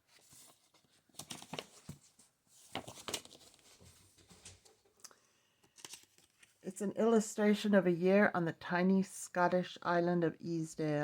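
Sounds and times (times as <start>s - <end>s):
book pages rustling and tapping: 0.0s - 4.9s.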